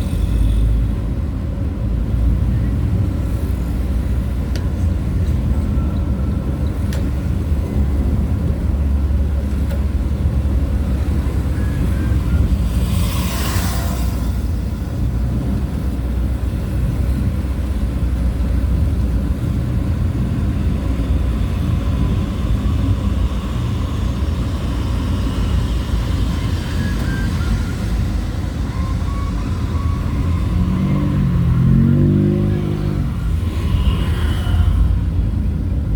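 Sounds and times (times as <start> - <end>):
vehicle engine and road rumble: 0.0 - 35.9.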